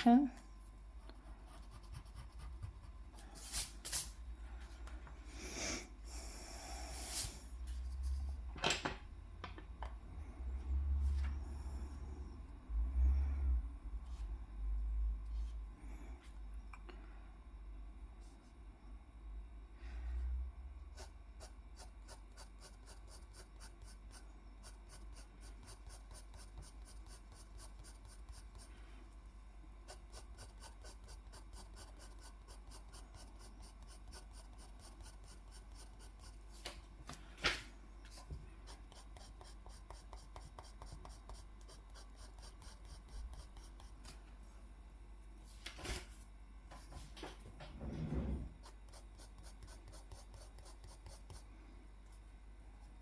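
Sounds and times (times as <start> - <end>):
drawing tool scratching on paper: 1.0 - 3.6, 20.9 - 28.8, 29.8 - 36.5, 38.2 - 44.0, 48.6 - 51.5.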